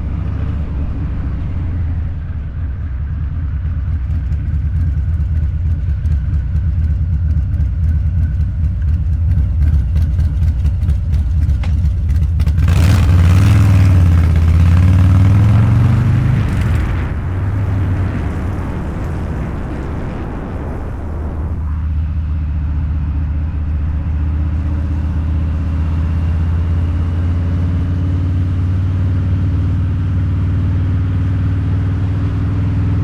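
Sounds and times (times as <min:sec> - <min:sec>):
motorcycle engine revving: 0:12.1 - 0:21.9
loud rush of noise: 0:12.7 - 0:22.2.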